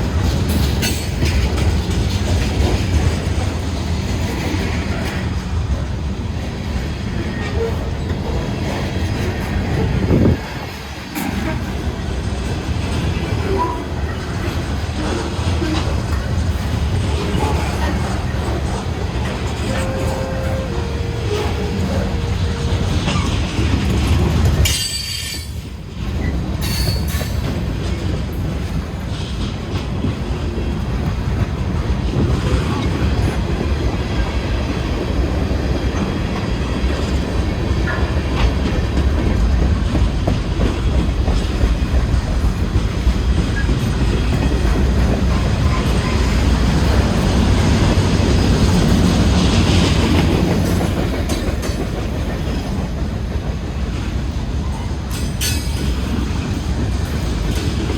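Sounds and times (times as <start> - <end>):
wheels clattering over rail joints: 0.0 - 34.7
freight train rumble: 0.0 - 57.9.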